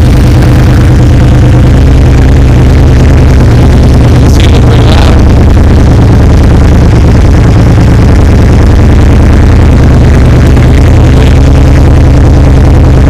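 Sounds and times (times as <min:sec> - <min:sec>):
motorcycle engine running loud: 0:00.0 - 0:13.0.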